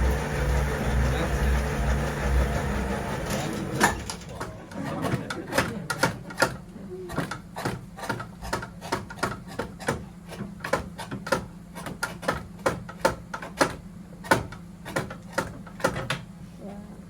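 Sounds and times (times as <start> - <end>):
machine motor hum: 0.0 - 5.9.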